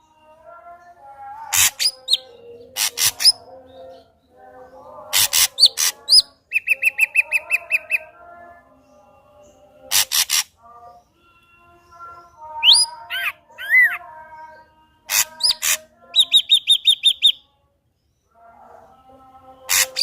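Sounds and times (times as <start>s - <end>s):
bird singing whistles and harsh notes: 15.1s - 17.4s.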